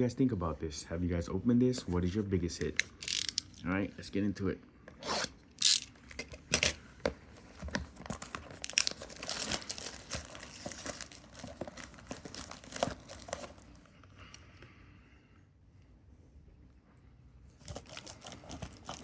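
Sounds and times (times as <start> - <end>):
packaging crinkling: 2.8 - 3.6, 5.2 - 13.9, 17.6 - 19.0
packaging ripping: 2.8 - 3.6, 5.0 - 6.8, 7.6 - 13.8, 17.6 - 19.0.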